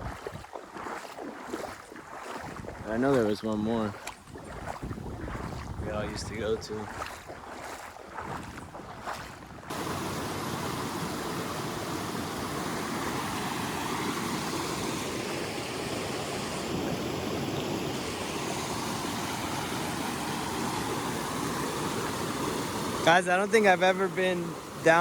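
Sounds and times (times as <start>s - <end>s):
river water rushing over rocks: 9.7s - 25.0s.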